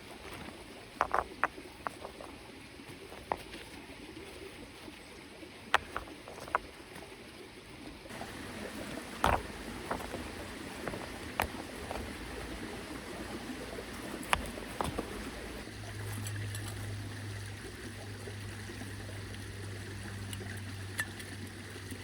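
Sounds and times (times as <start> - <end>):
mountain stream running: 0.0 - 22.0
sharp knocks and clicks: 0.3 - 2.2, 8.1 - 15.6.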